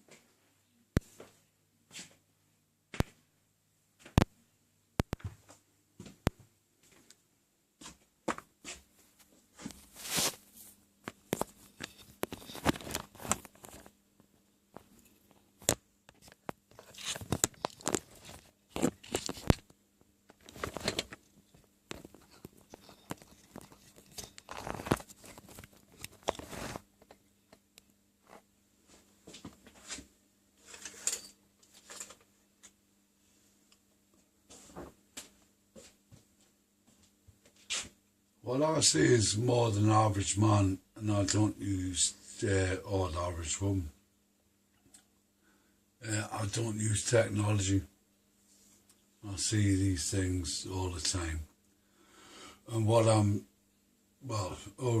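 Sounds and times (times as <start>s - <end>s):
faint steady hum: 0.0s - 55.0s
rustling and crinkling: 7.8s - 32.4s.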